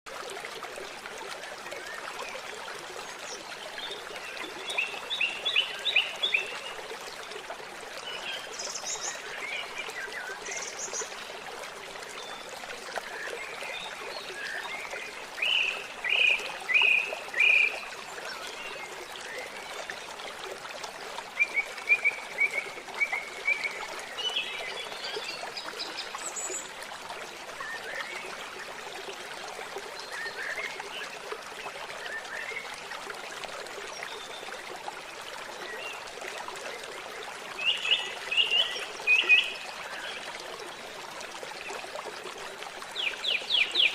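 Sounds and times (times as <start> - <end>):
water trickling: 0.1 - 43.9.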